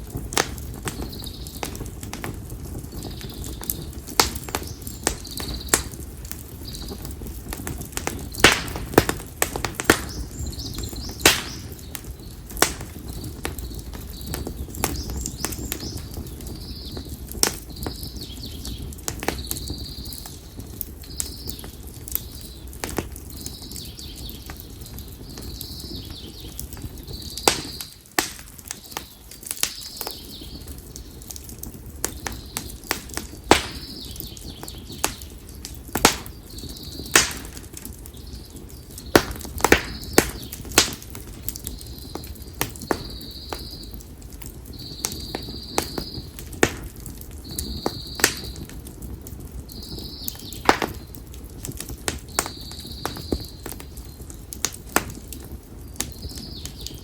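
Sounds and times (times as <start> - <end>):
firewood crackling and popping: 0.0 - 57.0
low rumble of flame: 0.0 - 57.0
bird chirping: 41.7 - 44.0, 44.6 - 46.4, 47.4 - 48.6.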